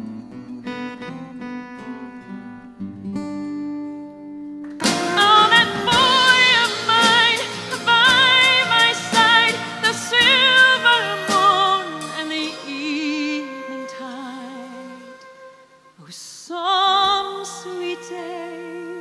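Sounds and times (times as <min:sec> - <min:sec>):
band playing: 0:04.7 - 0:15.5
soft instrumental chords: 0:04.7 - 0:15.8
woman singing with vibrato: 0:04.8 - 0:15.4, 0:16.0 - 0:19.0.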